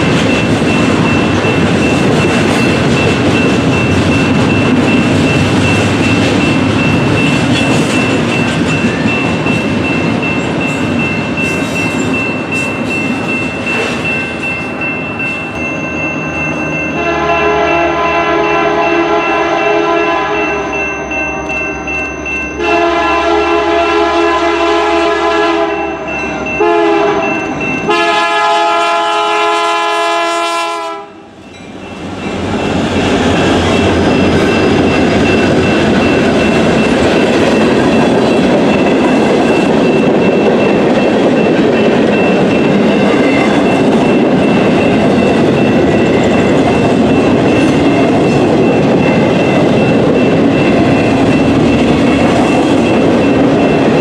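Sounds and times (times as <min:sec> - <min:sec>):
train wheels rumbling on rails: 0:00.0 - 0:54.0
train air horn blasts: 0:17.0 - 0:20.7, 0:22.6 - 0:26.0, 0:26.6 - 0:27.3, 0:27.9 - 0:31.3.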